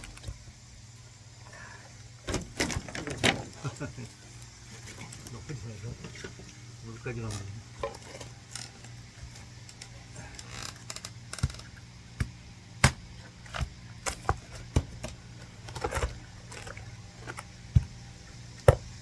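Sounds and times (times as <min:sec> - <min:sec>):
axe chopping log: 0:11.4 - 0:16.7, 0:18.6 - 0:19.0.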